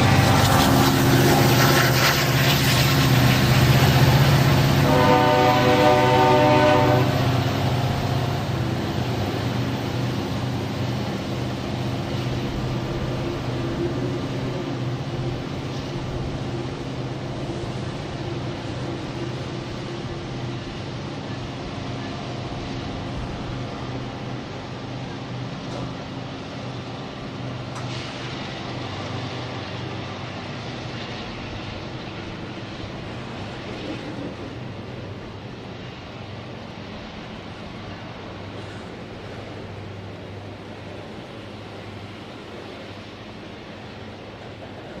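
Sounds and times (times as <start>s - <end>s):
diesel locomotives rumbling: 0.0s - 45.0s
train horn chord: 4.8s - 7.3s.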